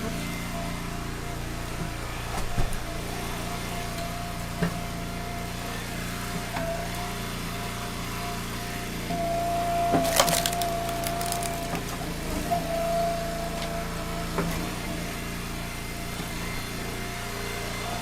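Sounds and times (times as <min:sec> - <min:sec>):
log splitter whine: 0:00.0 - 0:18.0
wood cracking and splintering: 0:09.9 - 0:12.0.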